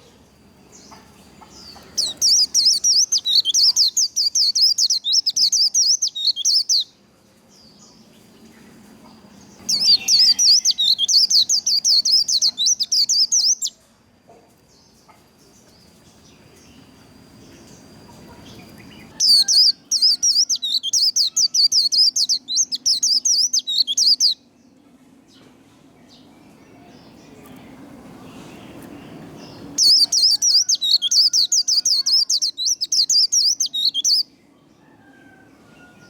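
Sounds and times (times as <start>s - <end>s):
bird twittering song: 0.0s - 7.0s, 7.6s - 13.8s, 14.7s - 34.4s.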